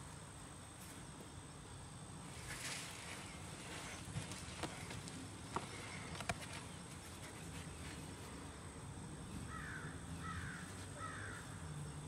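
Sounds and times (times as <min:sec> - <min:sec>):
harsh bird calls: 0:09.4 - 0:11.8.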